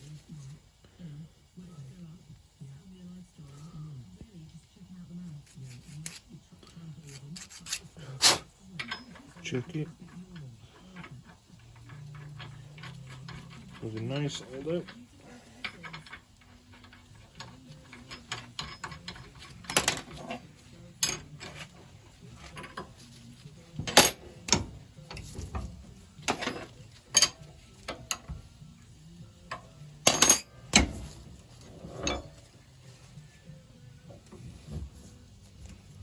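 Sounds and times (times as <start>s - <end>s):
metal parts clinking on workbench: 8.8s - 21.7s, 23.7s - 25.2s, 26.2s - 28.4s, 29.5s - 31.2s, 31.8s - 32.4s.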